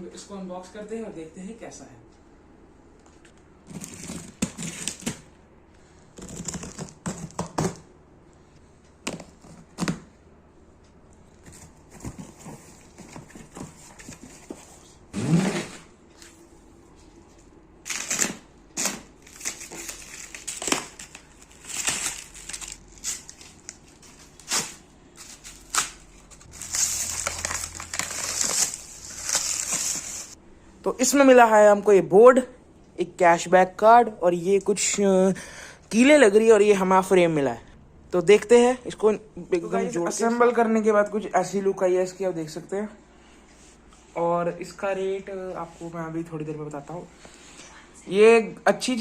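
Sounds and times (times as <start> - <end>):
cardboard rustling and crinkling: 3.6 - 5.2, 11.3 - 16.5, 17.3 - 30.4.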